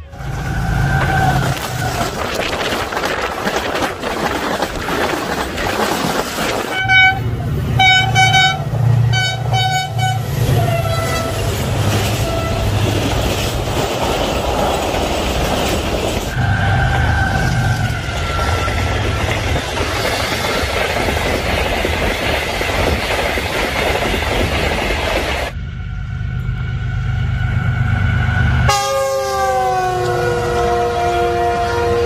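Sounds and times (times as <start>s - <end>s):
locomotive rumble: 0.0s - 32.0s
train wheel and rail rush: 0.0s - 32.0s
train horn blasts: 6.7s - 12.8s, 28.5s - 32.0s.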